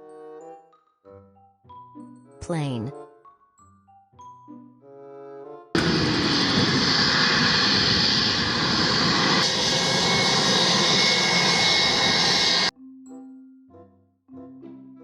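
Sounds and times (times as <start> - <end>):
airplane engine rushing: 5.8 - 12.7
faint high whine: 5.8 - 12.7.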